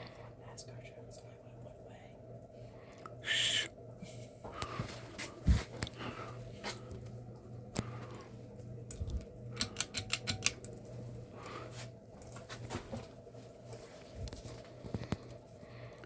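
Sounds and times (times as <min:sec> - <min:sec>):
ceiling fan motor humming: 0:00.0 - 0:16.0
sharp clicks and rattles: 0:08.9 - 0:10.9.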